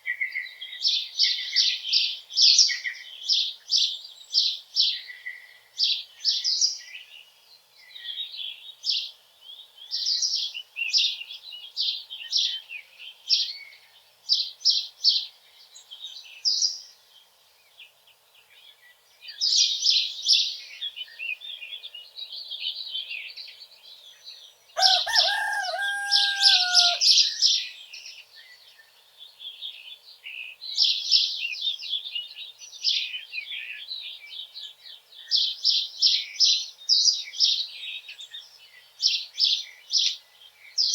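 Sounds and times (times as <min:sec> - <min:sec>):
songbirds chirping: 0:00.0 - 0:40.9
rooster crowing: 0:24.8 - 0:27.2.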